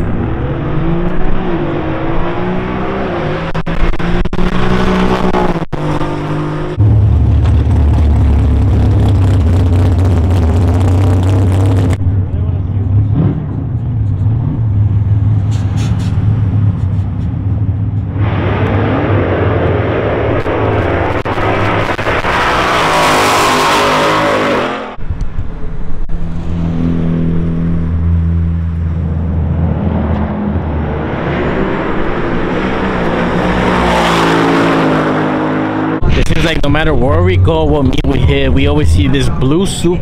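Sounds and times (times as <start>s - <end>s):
car revving and accelerating: 0.0s - 12.0s, 12.8s - 25.0s, 26.1s - 40.0s
car engines idling: 6.7s - 18.2s.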